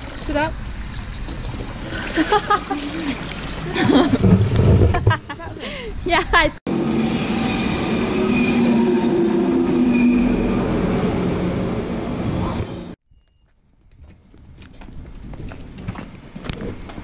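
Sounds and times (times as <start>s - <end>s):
high-speed train passing: 6.7s - 12.7s
train whine: 6.7s - 13.0s.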